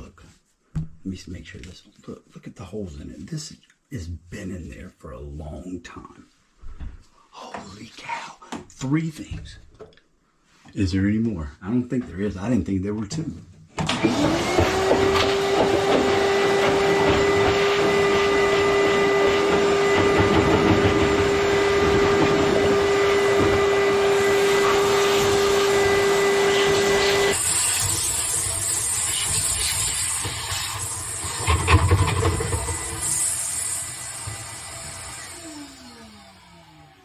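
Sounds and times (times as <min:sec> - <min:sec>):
vacuum cleaner whine: 0:13.8 - 0:37.0.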